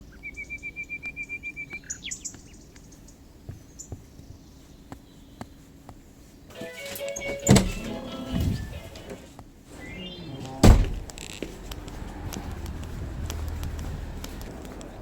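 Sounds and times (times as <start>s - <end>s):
songbird trilling: 0.0s - 5.6s, 9.8s - 10.6s
music: 6.5s - 9.3s
faint clicks: 11.1s - 15.0s.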